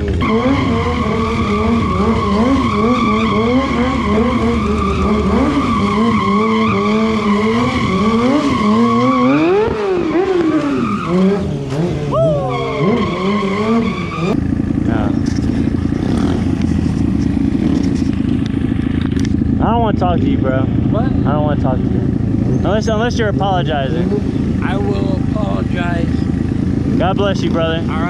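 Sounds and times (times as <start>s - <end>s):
tyre squealing on pavement: 0.0s - 14.5s
motorcycle engine revving: 0.0s - 28.0s.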